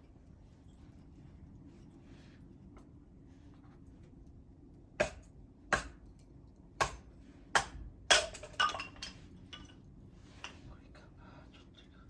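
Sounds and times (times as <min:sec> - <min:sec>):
hard objects knocking and clinking: 0:08.1 - 0:09.8.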